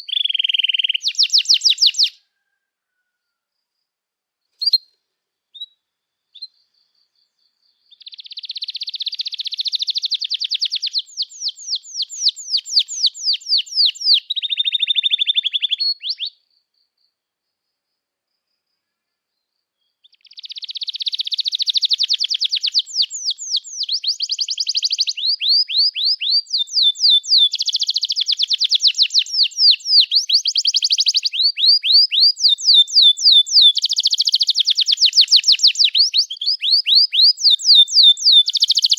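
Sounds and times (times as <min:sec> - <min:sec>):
canary singing trills: 0:00.0 - 0:02.2, 0:04.6 - 0:16.6, 0:19.8 - 0:38.9.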